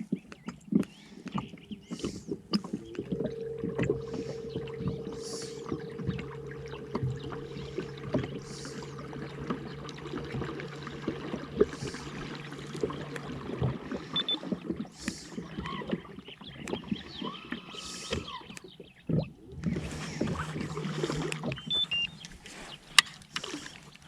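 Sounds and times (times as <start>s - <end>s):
steady motor hum: 1.2s - 17.4s, 19.5s - 22.2s.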